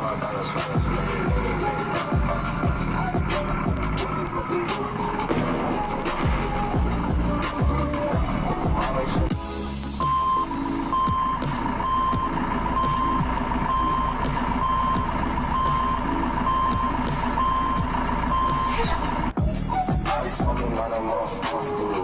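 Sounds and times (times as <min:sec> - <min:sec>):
truck engine running: 0:00.0 - 0:22.0
truck reversing alarm beeping: 0:10.0 - 0:19.3.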